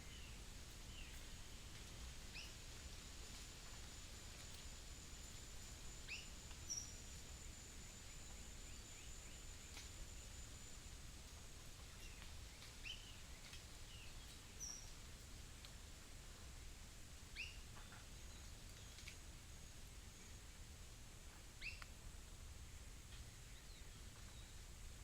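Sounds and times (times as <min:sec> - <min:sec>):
high insect whine: 0:02.0 - 0:12.0.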